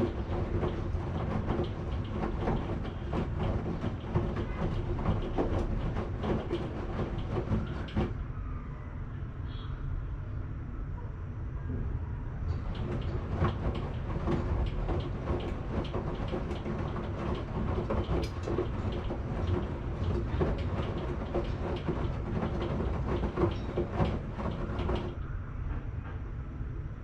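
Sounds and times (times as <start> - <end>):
washing machine clicking and knocking: 0.0 - 8.2, 12.5 - 25.2
washing machine drum rumbling: 0.0 - 8.2, 12.5 - 25.2.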